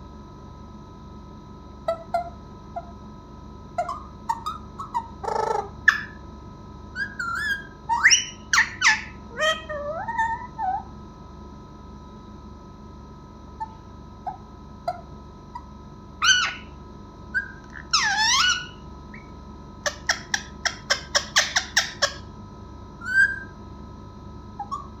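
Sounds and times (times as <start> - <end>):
parrot squawking: 1.9 - 2.9, 3.8 - 6.2, 7.0 - 10.9, 13.6 - 16.8, 17.4 - 22.2, 23.0 - 23.5, 24.6 - 25.0
parrot chirping: 1.9 - 3.0, 3.8 - 6.2, 7.0 - 10.9, 13.6 - 22.2, 23.0 - 23.6, 24.6 - 25.0.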